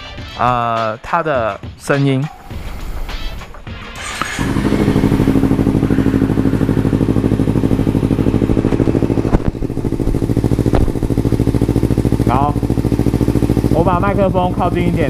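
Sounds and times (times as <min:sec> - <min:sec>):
motorcycle engine idling: 0:04.0 - 0:15.0.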